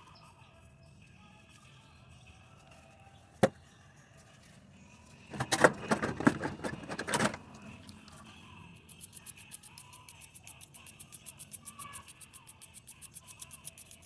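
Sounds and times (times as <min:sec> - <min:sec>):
metal parts clinking and rattling: 0:05.3 - 0:08.3.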